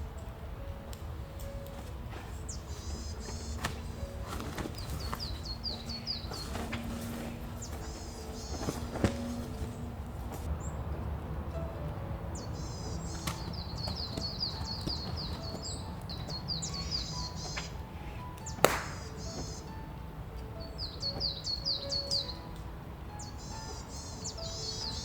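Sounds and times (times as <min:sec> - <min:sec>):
soft background music: 0:00.0 - 0:25.0
songbird singing high notes: 0:01.3 - 0:10.8, 0:12.2 - 0:25.0.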